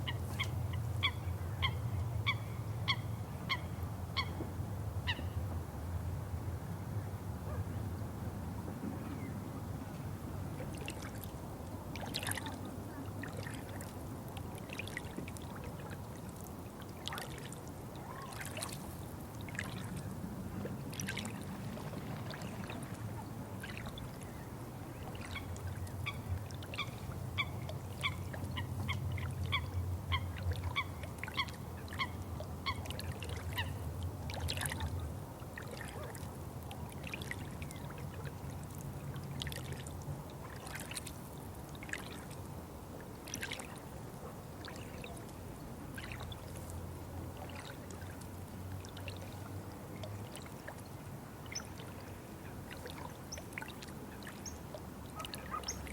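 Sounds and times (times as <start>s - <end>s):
water trickling and dripping: 43.2s - 43.9s, 44.6s - 52.1s, 52.7s - 55.9s.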